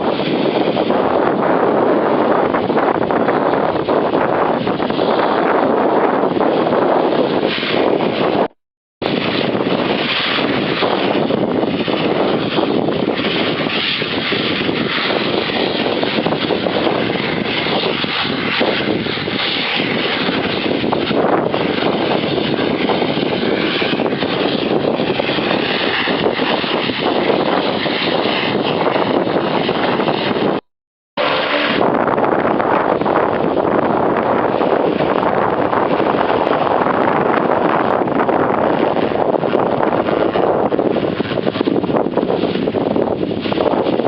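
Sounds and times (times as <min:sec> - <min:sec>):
airplane engines running: 0:31.2 - 0:32.2.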